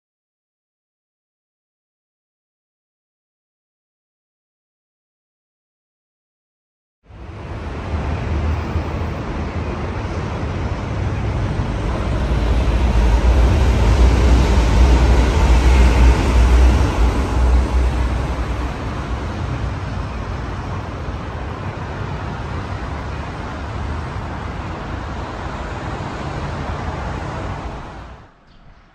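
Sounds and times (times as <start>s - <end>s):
road traffic noise: 7.0s - 28.9s
electric train rumbling past: 7.1s - 28.9s.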